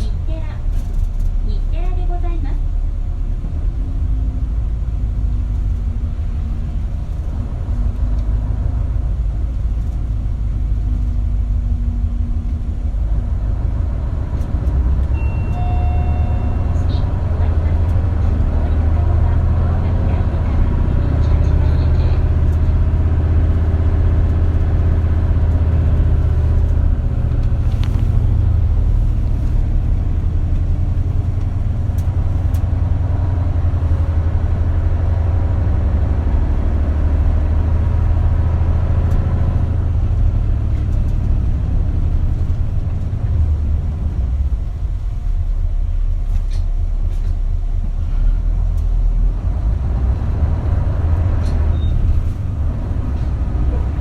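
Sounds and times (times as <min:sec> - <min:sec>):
bus diesel engine: 0:00.0 - 0:54.0
road noise: 0:00.0 - 0:54.0.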